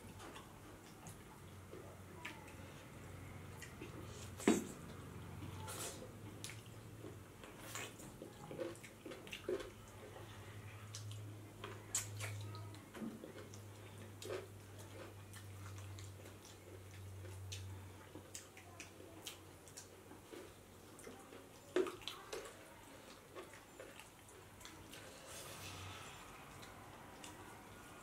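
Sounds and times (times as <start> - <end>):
wet chewing and mouth smacks: 3.5 - 5.0, 6.2 - 9.9, 10.9 - 27.6.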